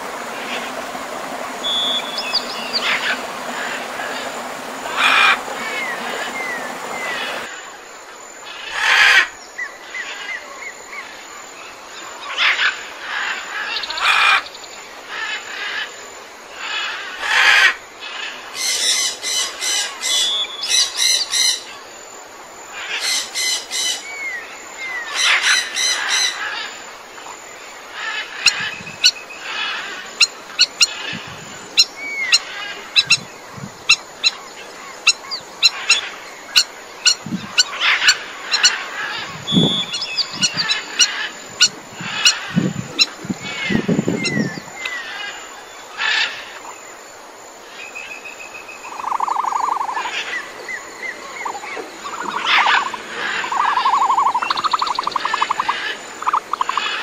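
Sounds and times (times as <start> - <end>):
birds chirping and squawking: 0.2 - 7.5, 28.0 - 45.4, 49.0 - 57.0.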